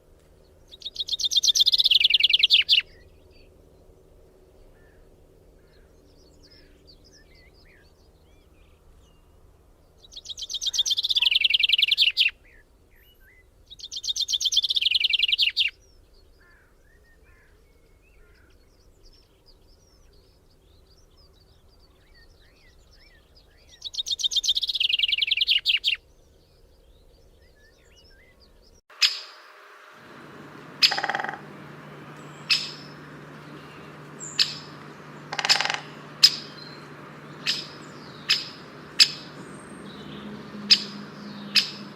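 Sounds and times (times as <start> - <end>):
songbird trilling: 0.8 - 2.8, 28.9 - 41.9
faint bird chirps: 29.0 - 41.9
low hum: 29.0 - 41.9
sharp short clicks or calls: 34.2 - 36.6.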